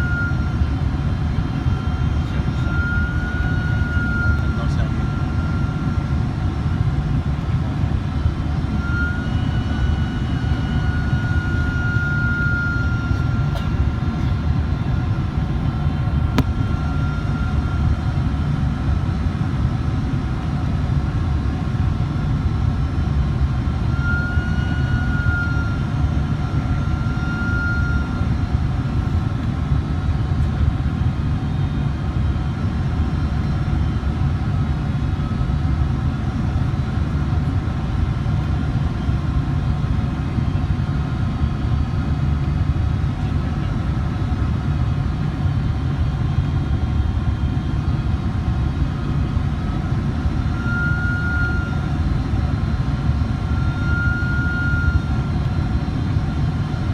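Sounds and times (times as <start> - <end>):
thin engine whine: 0.0 - 18.8, 46.0 - 56.9
jet airliner engine roar: 0.0 - 56.9.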